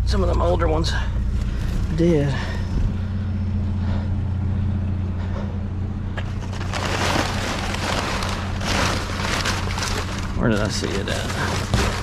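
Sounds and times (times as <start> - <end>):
vehicle engine idling: 0.0 - 12.0
rustling and scraping debris: 6.1 - 12.0.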